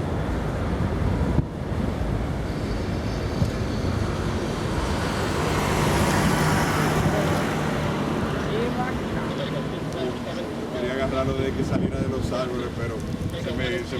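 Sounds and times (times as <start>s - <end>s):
jet engines rumbling: 0.0s - 13.9s
wind buffeting microphone: 0.0s - 13.9s
faint high whine: 1.5s - 6.8s.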